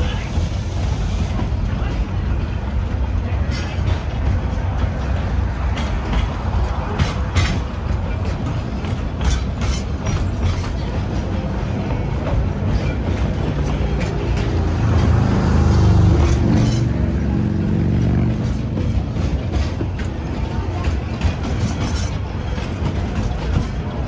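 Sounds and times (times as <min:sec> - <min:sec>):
train car rumbling on track: 0:00.0 - 0:24.0.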